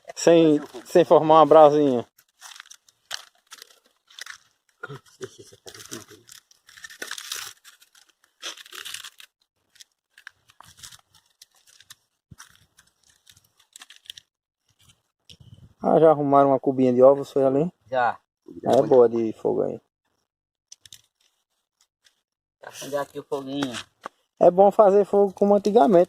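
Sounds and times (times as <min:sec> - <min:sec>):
kindling crackling and crunching: 0:00.1 - 0:15.4, 0:20.7 - 0:22.2.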